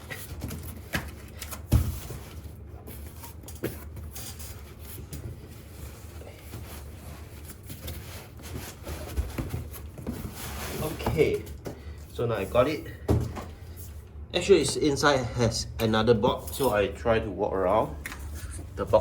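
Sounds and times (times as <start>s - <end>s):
cardboard rubbing and scraping: 1.8s - 11.5s.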